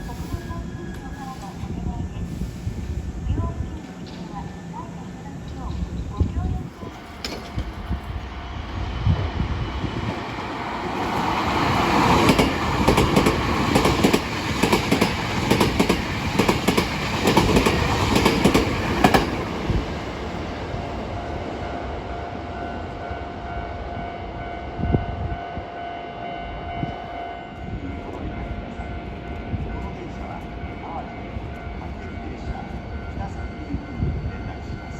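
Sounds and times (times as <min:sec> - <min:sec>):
electric train passing: 0:00.0 - 0:34.9
wheels clattering over rail joints: 0:06.8 - 0:08.0.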